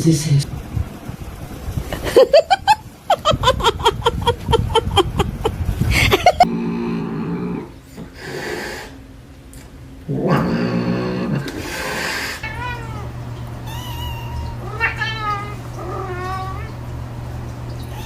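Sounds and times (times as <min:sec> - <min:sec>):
low steady animal sound: 0:06.4 - 0:09.0, 0:10.0 - 0:13.2
cat making short pitched calls: 0:13.7 - 0:15.6.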